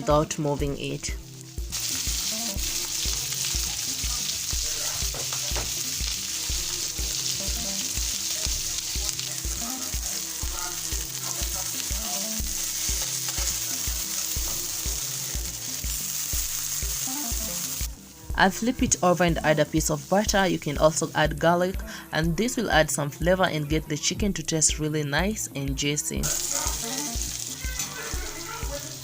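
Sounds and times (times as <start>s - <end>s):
chicken sizzling in oil: 1.1s - 18.1s, 26.2s - 29.0s.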